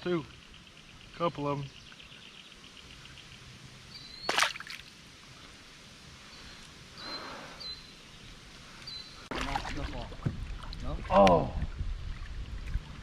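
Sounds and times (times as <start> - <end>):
sharp water splash: 4.2 - 4.9
water sloshing around a kayak: 4.3 - 4.8, 9.2 - 13.0.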